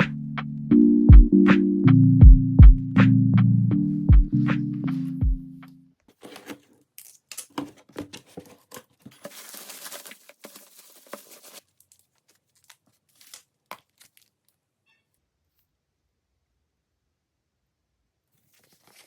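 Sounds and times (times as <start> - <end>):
background music: 0.0 - 5.9
paper crinkling and tearing: 6.1 - 14.5, 18.5 - 19.0.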